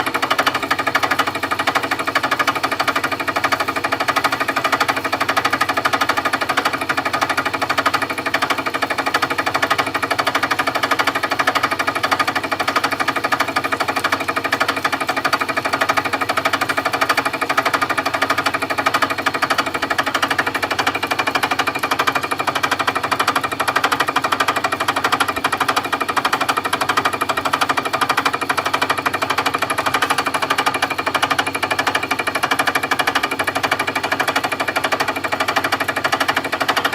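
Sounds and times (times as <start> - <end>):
milling machine cutting: 14.4 - 36.9.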